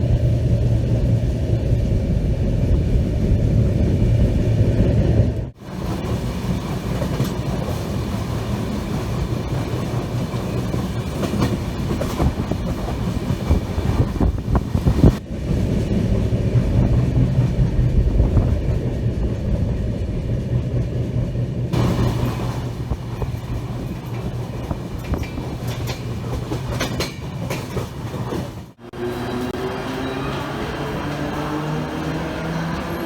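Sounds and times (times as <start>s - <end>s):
train rumbling on rails: 0.0s - 33.0s
wheels clicking over rail joints: 5.6s - 15.2s, 16.5s - 33.0s.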